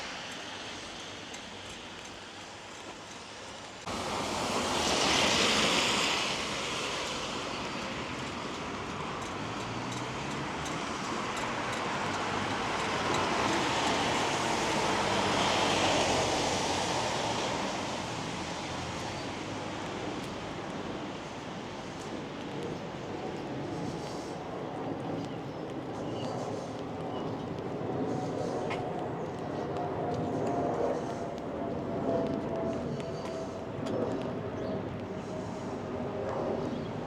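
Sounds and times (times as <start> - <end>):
rain hiss: 0.0 - 8.8
tyres hissing on wet road: 0.0 - 23.1, 23.7 - 24.5, 35.2 - 35.9.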